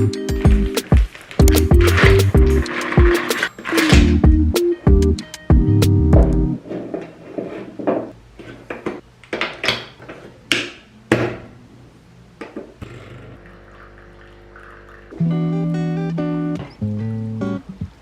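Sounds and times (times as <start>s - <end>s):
objects knocking and scraping: 0.4s - 4.2s, 6.6s - 11.4s
faint steady hum: 10.8s - 18.0s.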